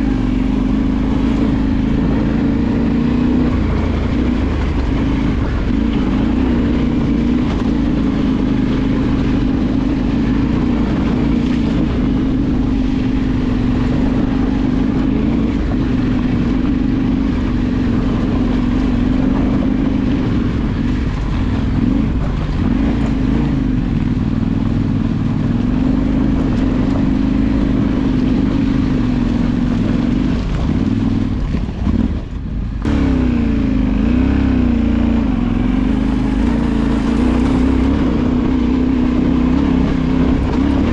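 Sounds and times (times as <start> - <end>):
off-road motorcycle engine revving: 0.0 - 40.9.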